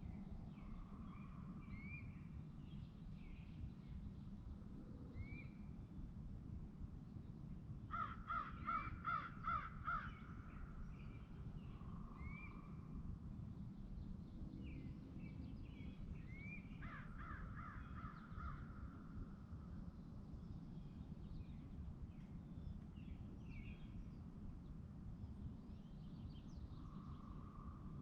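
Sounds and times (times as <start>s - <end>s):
faint bird whistles: 12.2s - 12.7s.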